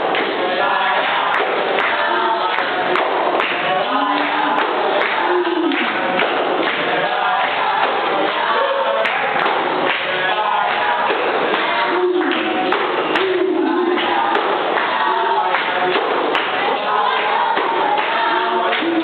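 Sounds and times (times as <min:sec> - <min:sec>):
group of voices singing: 0:00.0 - 0:19.0.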